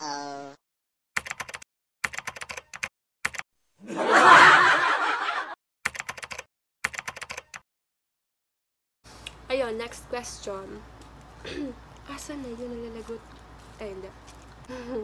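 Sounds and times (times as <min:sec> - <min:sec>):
rapid sharp clicks: 0:05.9 - 0:07.6.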